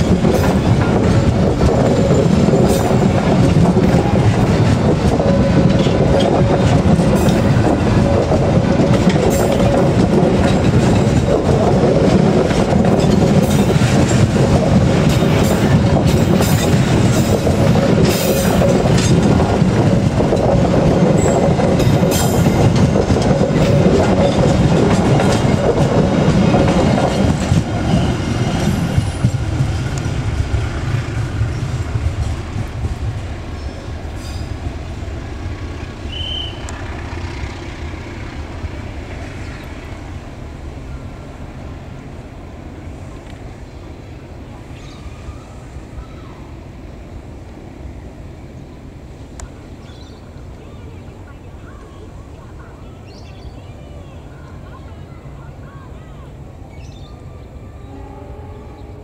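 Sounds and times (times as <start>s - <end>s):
wheels clicking over rail joints: 0.0s - 30.6s
train wheels rumbling on rail: 0.0s - 59.0s.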